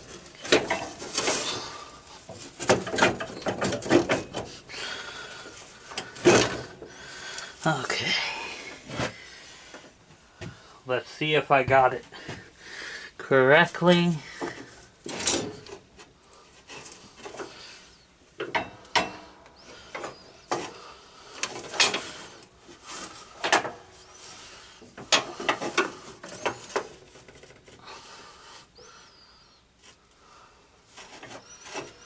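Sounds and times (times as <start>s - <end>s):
metal parts knocking and scraping: 0.0s - 4.6s, 14.4s - 15.9s, 21.4s - 22.2s.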